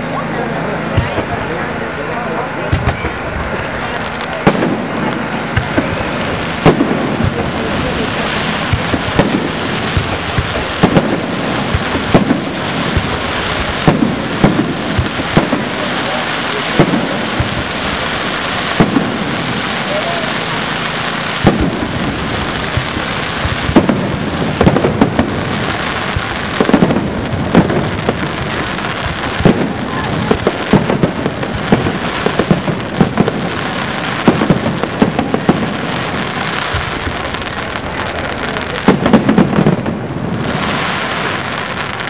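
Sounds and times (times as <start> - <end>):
crackling hiss of fireworks: 0.0 - 42.0
fireworks bursting with sharp bangs: 0.0 - 42.0.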